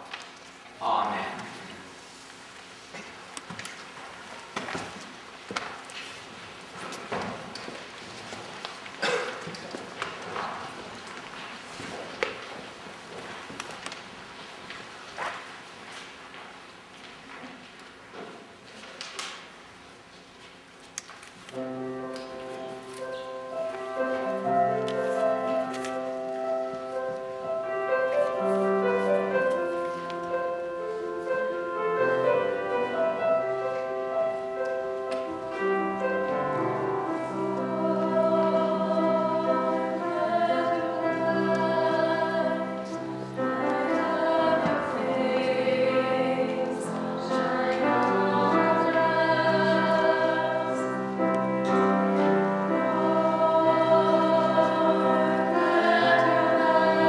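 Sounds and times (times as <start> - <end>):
choir singing: 36.0 - 57.0.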